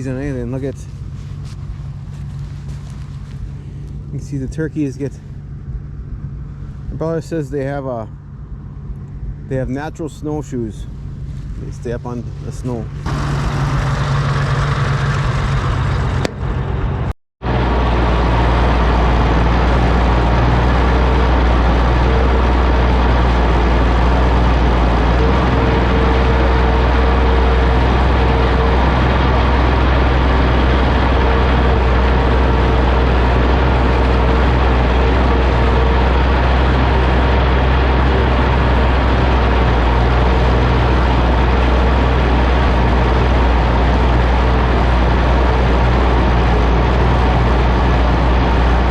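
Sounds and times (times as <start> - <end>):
tractor engine droning: 0.0 - 48.9
faint steady whine: 17.5 - 48.9.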